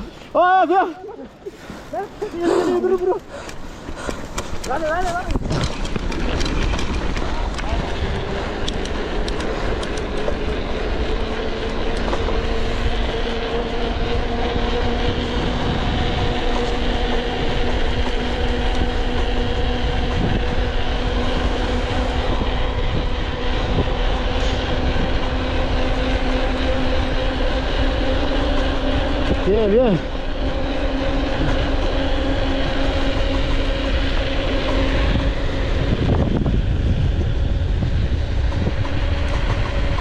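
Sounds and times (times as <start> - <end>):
tyre and wind noise: 0.0 - 40.0
rising humming tone: 1.6 - 40.0.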